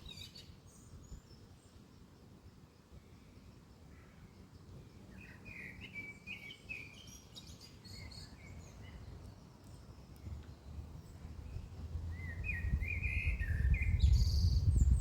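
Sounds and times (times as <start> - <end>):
songbird chirping: 0.0 - 15.0
low background rumble: 10.1 - 15.0.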